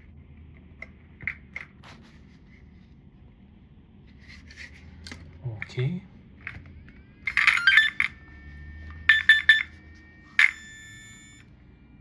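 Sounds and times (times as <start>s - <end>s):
electric steering servo whining: 6.4s - 11.5s.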